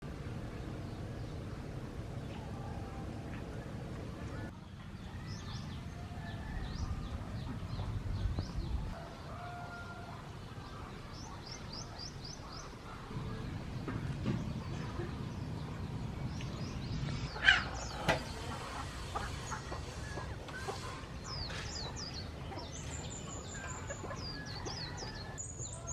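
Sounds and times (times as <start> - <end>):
small birds chirping: 0.1 - 25.9
low rumble: 12.8 - 20.3.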